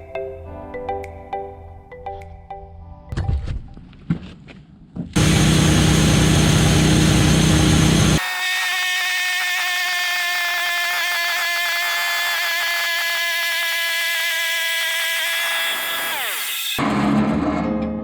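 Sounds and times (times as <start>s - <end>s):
log mill saw whining: 5.2s - 16.8s.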